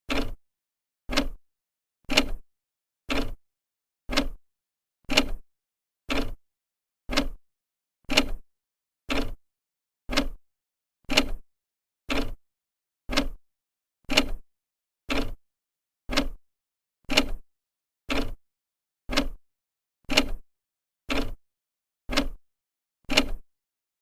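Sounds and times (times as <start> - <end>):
clock ticking: 0.1 - 0.4, 1.1 - 1.4, 3.1 - 3.4, 4.1 - 4.4, 6.1 - 6.4, 7.1 - 7.4, 9.1 - 9.4, 10.1 - 10.4, 12.1 - 12.4, 13.1 - 13.4, 14.1 - 14.4, 15.1 - 15.4, 16.1 - 16.4, 17.1 - 17.4, 18.1 - 18.4, 19.1 - 19.4, 20.1 - 20.4, 21.1 - 21.4, 22.1 - 22.4, 23.1 - 23.4.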